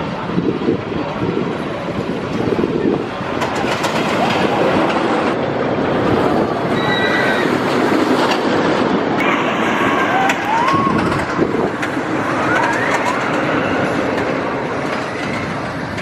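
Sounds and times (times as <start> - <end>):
roller coaster train rumbling: 0.0 - 16.0
rushing air: 0.0 - 16.0
high squeal: 6.7 - 7.7, 12.3 - 14.0.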